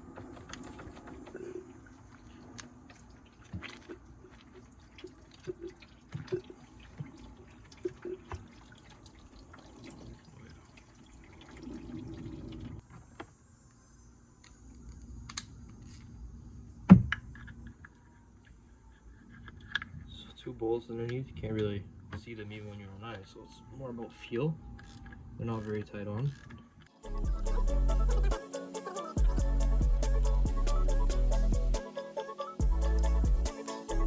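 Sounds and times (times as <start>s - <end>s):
coolant dripping into pan: 0.5s - 12.8s.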